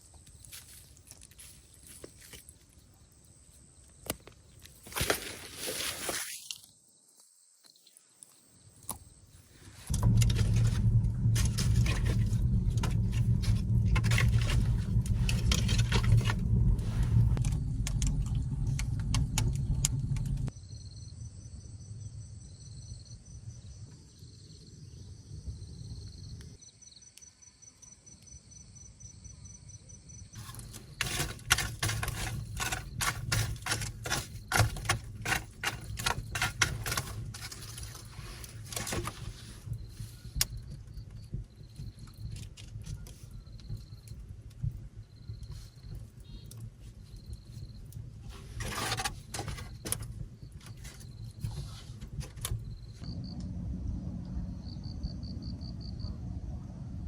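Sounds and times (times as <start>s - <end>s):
wood fire crackling: 9.9s - 20.5s, 30.4s - 52.7s.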